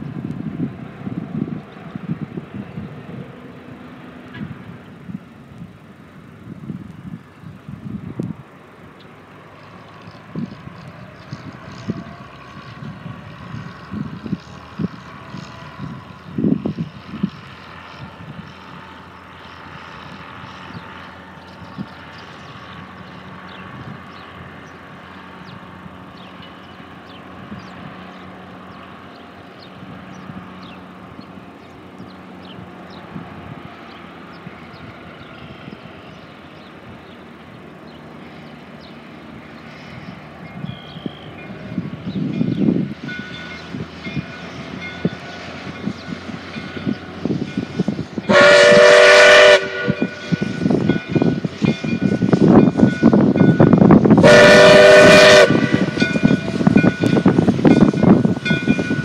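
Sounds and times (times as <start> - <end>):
train rumbling: 0.0 - 59.0.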